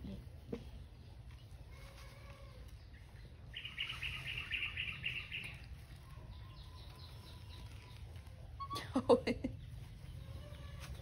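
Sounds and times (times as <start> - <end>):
bird chirping trill: 2.8 - 8.0.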